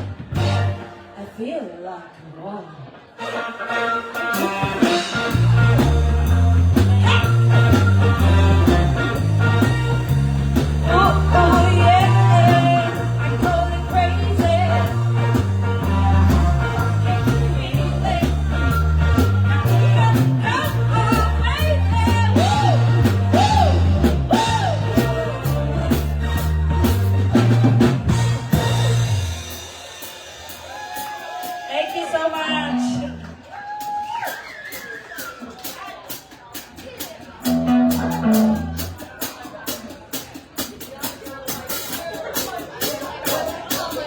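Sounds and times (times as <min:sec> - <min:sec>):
bass guitar line: 0:00.0 - 0:01.1, 0:04.2 - 0:29.7, 0:32.4 - 0:33.4, 0:37.4 - 0:39.4
drums: 0:00.0 - 0:01.8, 0:02.8 - 0:44.0
person singing: 0:10.6 - 0:25.9.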